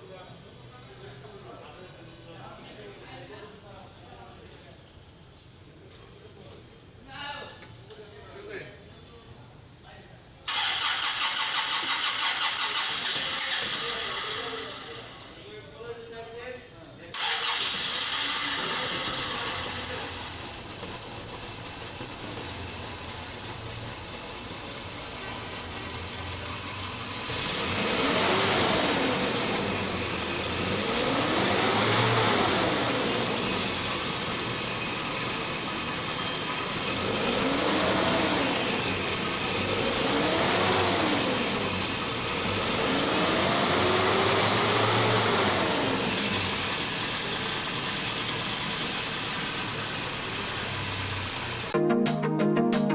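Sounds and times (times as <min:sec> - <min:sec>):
car engine idling and revving: 0:10.5 - 0:15.4, 0:17.2 - 0:51.8.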